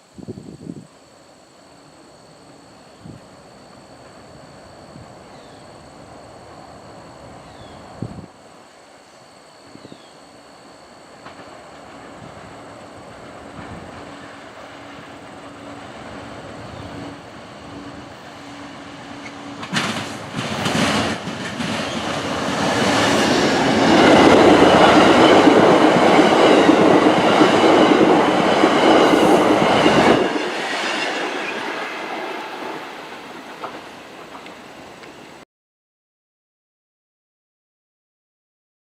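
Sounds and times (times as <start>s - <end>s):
train rumble: 0.2s - 35.4s
train wheels clicking on rails: 11.1s - 35.4s.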